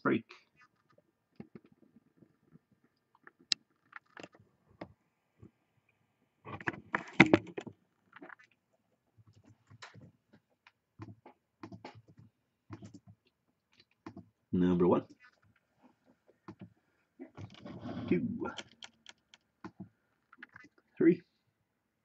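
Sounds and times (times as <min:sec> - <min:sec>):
rustling and handling noise: 0:15.0 - 0:20.9
small clicks and knocks: 0:18.6 - 0:20.8.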